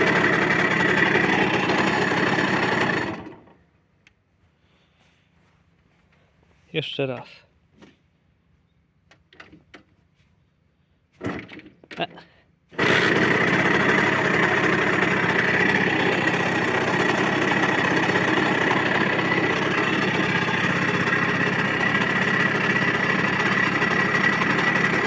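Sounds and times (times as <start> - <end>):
scooter engine idling: 0.0 - 3.6, 12.8 - 25.0.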